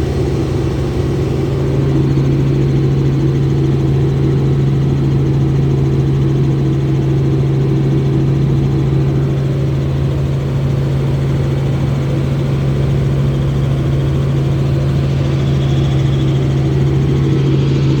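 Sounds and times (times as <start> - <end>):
helicopter engine and rotor: 0.0 - 18.0.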